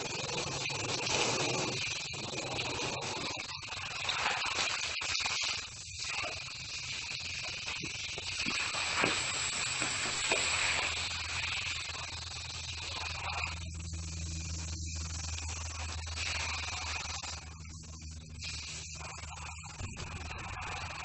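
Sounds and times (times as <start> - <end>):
steady hissing noise: 0.0 - 21.0
low hum: 7.5 - 21.0.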